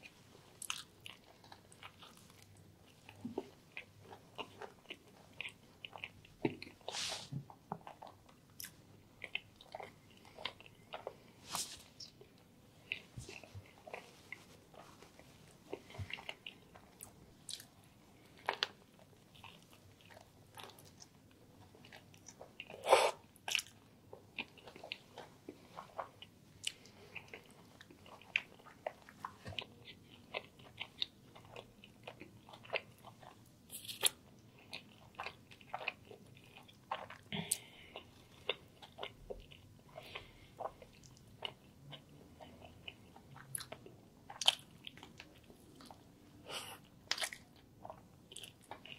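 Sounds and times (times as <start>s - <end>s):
chewing crunchy sandwich: 0.0s - 6.9s, 7.5s - 46.1s, 46.8s - 48.9s.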